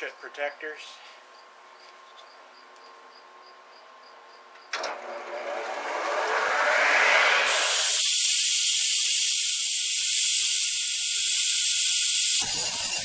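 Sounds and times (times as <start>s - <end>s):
circular saw running: 5.0s - 11.2s.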